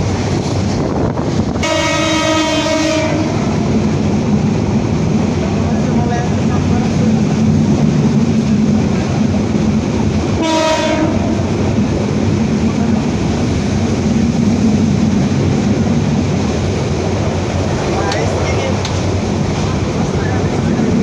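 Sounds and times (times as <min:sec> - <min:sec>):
train rumbling: 0:00.0 - 0:21.0
train horn blast: 0:01.6 - 0:03.5, 0:10.4 - 0:11.5.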